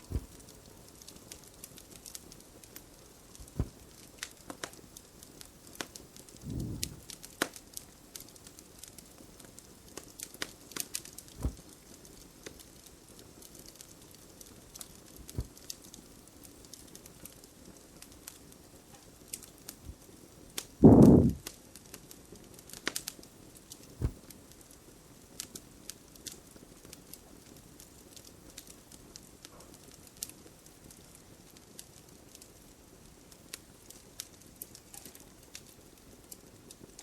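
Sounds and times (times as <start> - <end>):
wood fire crackling: 0.0 - 37.0
soft low thump: 6.4 - 7.0, 20.8 - 21.4.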